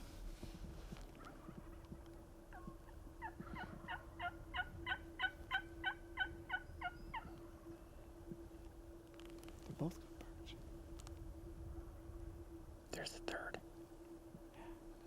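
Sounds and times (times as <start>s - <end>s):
turkey yelping: 2.5s - 7.7s.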